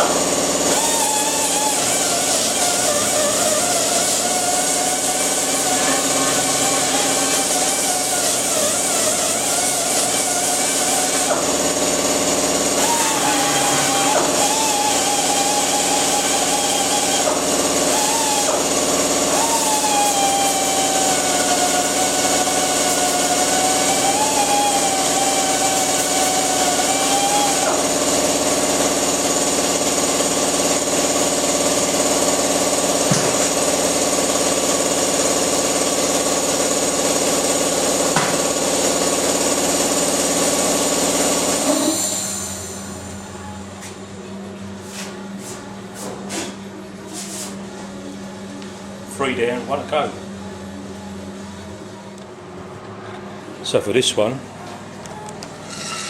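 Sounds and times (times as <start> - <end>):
electric grinder running: 0.0 - 43.2, 55.7 - 56.0.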